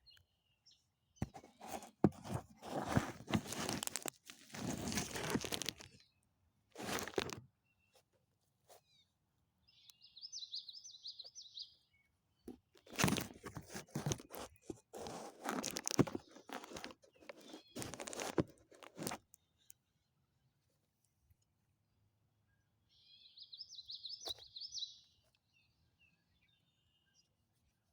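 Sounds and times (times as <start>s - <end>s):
twigs and leaves crunching: 1.2s - 6.0s, 6.8s - 7.4s, 12.8s - 19.3s.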